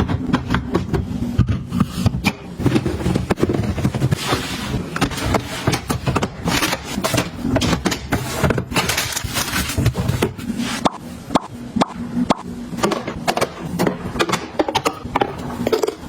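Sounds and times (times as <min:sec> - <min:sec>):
rustling and scraping: 0:01.1 - 0:11.2.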